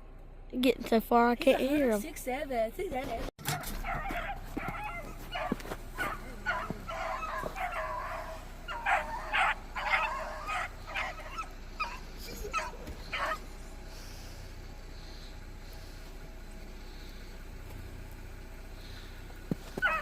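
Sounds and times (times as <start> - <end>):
dogs barking and yelping: 3.4 - 13.6, 19.6 - 20.0.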